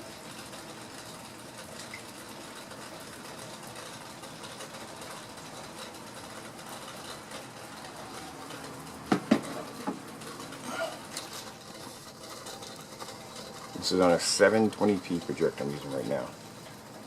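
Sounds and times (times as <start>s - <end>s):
sharp knocks: 9.1s - 10.0s.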